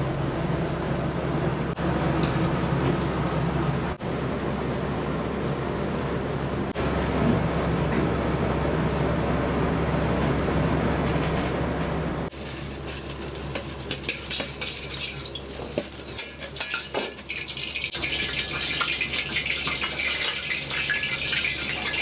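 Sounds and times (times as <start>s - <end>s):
food sizzling: 12.3s - 22.0s
metal utensils clinking on pans: 12.3s - 22.0s.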